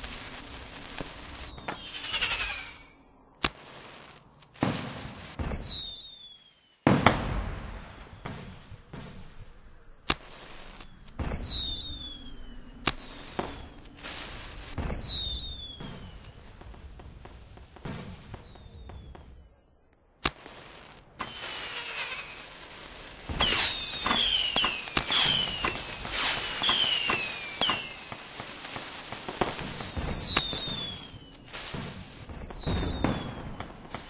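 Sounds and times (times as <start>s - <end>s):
fireworks bangs: 0.0s - 34.0s
firework whistles falling in pitch: 1.2s - 3.1s, 5.3s - 6.9s, 10.6s - 13.8s, 14.8s - 16.4s, 18.2s - 19.4s, 21.2s - 22.6s, 23.3s - 28.4s, 29.3s - 34.0s.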